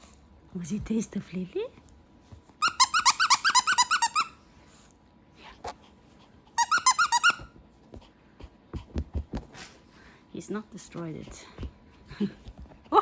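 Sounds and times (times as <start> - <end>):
squeaky dog toy squeaking: 2.6 - 4.4, 6.6 - 7.6.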